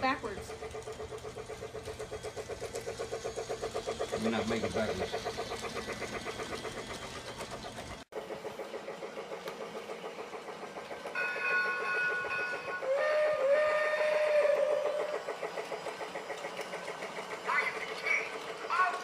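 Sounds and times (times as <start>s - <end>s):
toy locomotive chugging clatter: 0.0s - 19.0s
toy train whistle: 11.1s - 15.4s.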